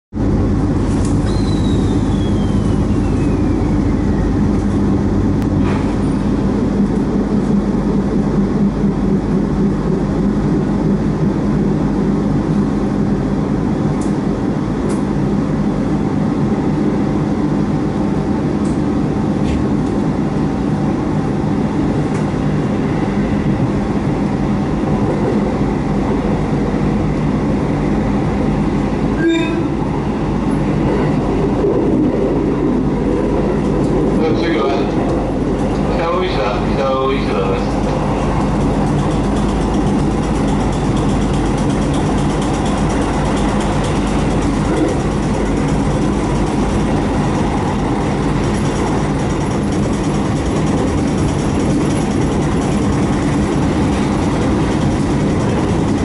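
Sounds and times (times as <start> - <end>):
train rumbling: 0.1 - 56.0
train motor whine: 0.2 - 7.7, 28.8 - 30.7.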